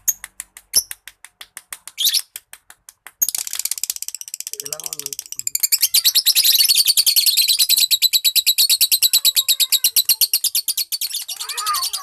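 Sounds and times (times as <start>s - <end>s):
lovebird high-pitched chatter: 2.0s - 2.3s, 3.2s - 12.0s.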